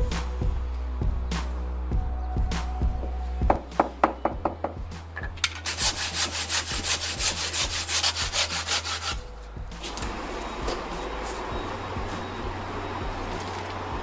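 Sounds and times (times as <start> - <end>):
hand saw sawing: 5.6 - 9.2.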